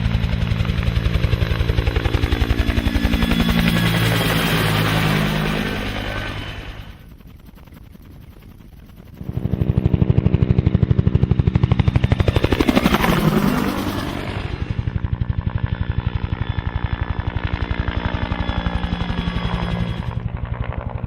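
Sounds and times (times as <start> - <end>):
helicopter rotor chop: 0.0 - 21.0.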